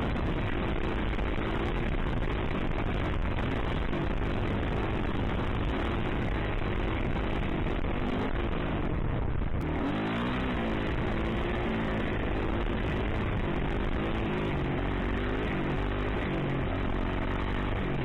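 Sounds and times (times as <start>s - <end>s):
dirt bike engine revving: 9.6s - 18.0s.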